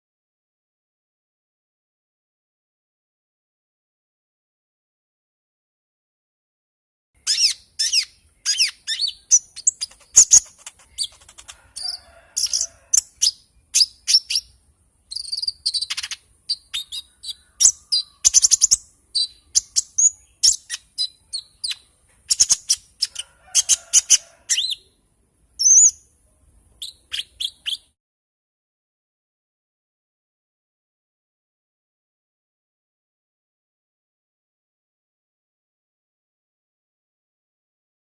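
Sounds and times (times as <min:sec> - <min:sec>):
songbird singing: 0:07.2 - 0:28.0.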